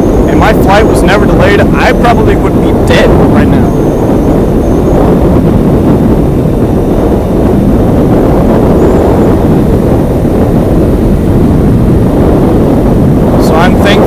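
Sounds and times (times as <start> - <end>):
motorcycle engine rumble: 0.0 - 14.0
road noise: 0.0 - 14.0
wind noise: 0.0 - 14.0.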